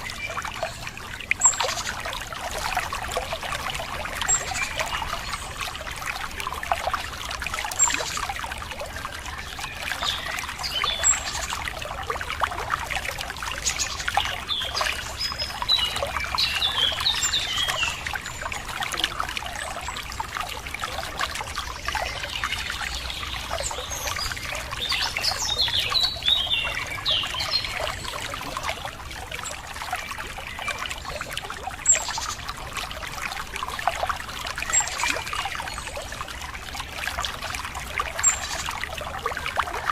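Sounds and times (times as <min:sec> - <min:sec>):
songbirds chirping: 0:00.0 - 0:39.8
water trickling over rocks: 0:00.0 - 0:39.9.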